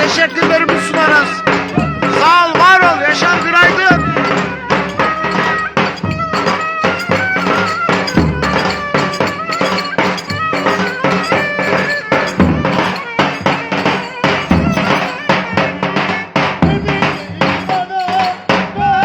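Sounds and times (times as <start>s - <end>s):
fast drum beat: 0.0s - 15.6s.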